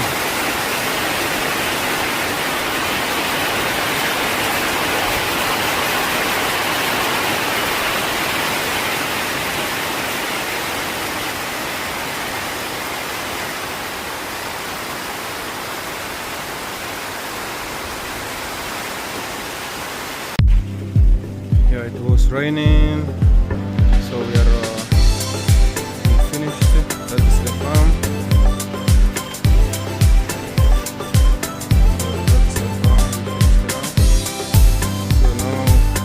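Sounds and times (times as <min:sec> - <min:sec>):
steady rain hissing: 0:00.0 - 0:22.7, 0:23.6 - 0:28.0.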